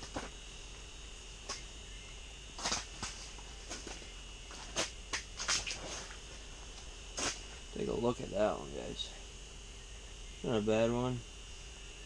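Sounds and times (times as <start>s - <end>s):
faint high-pitched hum: 0.0s - 12.0s
rustles and scrapes of movement: 2.4s - 9.4s.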